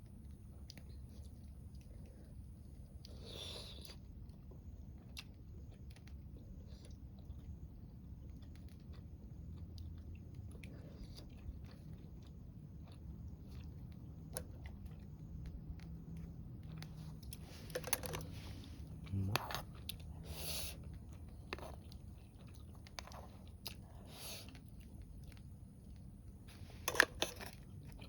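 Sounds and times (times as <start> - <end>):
person chewing food: 0.1 - 28.0.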